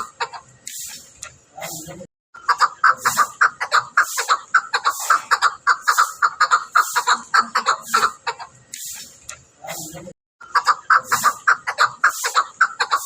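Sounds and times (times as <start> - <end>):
partridge clucking calls: 0.0 - 13.0.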